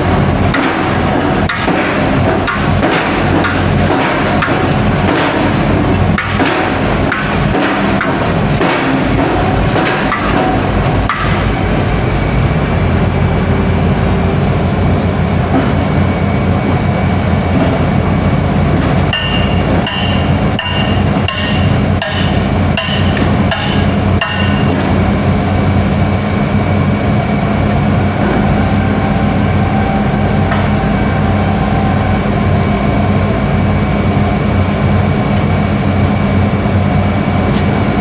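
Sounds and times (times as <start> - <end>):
diesel machinery running: 0.0 - 38.0
metallic clanks and knocks: 0.4 - 11.6, 18.7 - 25.1
reversing alarm beeping: 19.1 - 24.7, 27.4 - 34.3.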